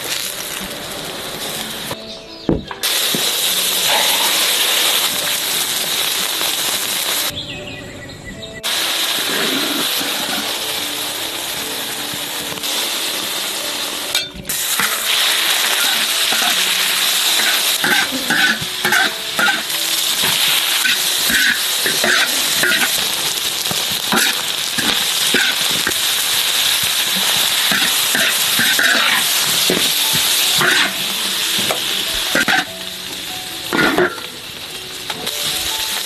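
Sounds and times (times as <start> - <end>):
food sizzling in a pan: 0.0 - 7.4, 8.6 - 36.0
spatula scraping and knocking pan: 17.3 - 23.1.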